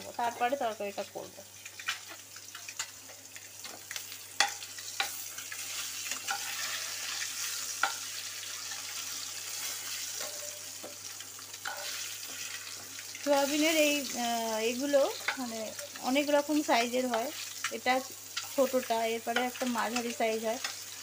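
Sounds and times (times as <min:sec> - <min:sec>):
food sizzling in hot oil: 0:00.0 - 0:21.0
spatula scraping pan: 0:04.4 - 0:13.8.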